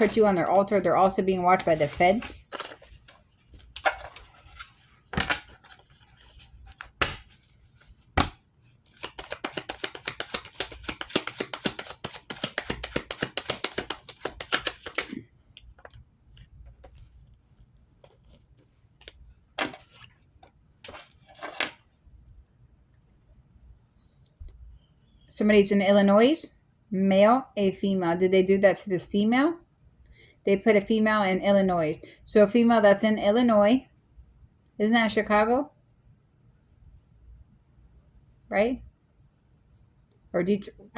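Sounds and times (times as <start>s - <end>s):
cards being shuffled: 0.0s - 21.9s
cards rustling: 0.0s - 21.9s
card slaps: 6.7s - 7.5s, 8.2s - 15.2s.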